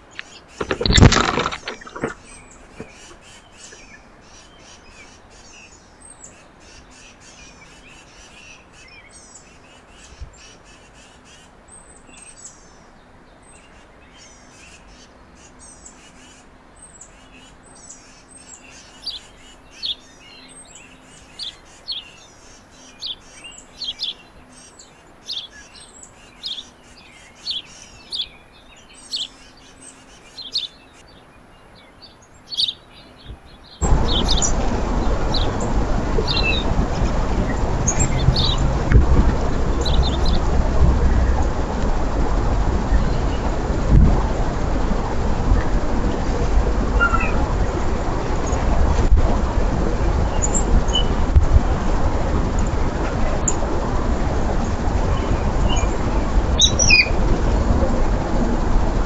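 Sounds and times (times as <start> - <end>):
small songbirds chirping: 31.8 - 41.9.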